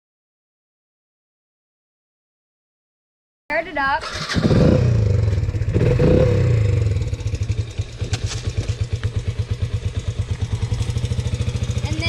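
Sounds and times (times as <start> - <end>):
small engine revving and idling: 4.0 - 12.0.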